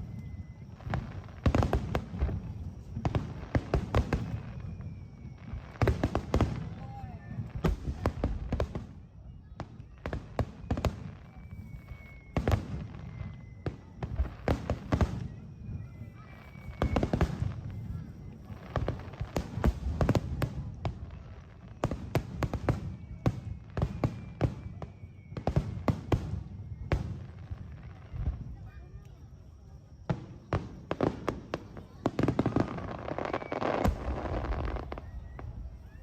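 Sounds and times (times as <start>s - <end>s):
fireworks bursting with bangs: 0.0s - 36.0s.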